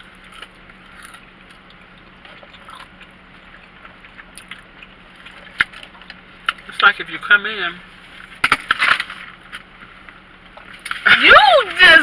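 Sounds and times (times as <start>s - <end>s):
people chewing food: 0.0s - 6.6s.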